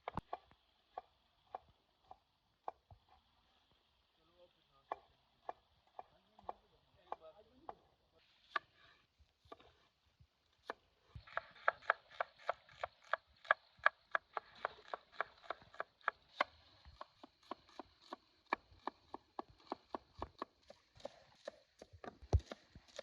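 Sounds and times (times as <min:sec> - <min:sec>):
knife chopping on wooden board: 0:09.5 - 0:09.8, 0:10.6 - 0:23.0.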